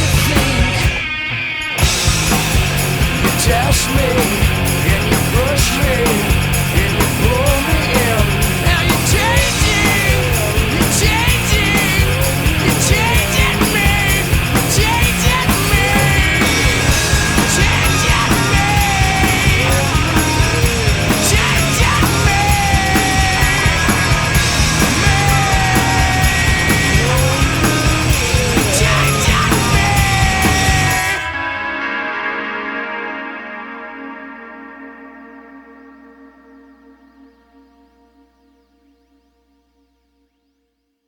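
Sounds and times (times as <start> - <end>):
driving drum beat: 0.0 - 31.5
loud rock music: 0.0 - 37.2
wavering lead guitar lines: 0.0 - 39.1.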